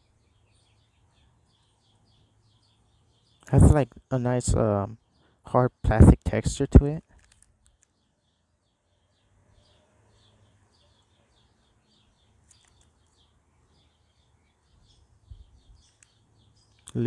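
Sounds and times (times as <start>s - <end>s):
faint bird chirping: 0.0s - 5.7s, 6.9s - 17.0s
faint clicks: 7.0s - 8.0s, 12.4s - 13.2s, 15.8s - 16.2s.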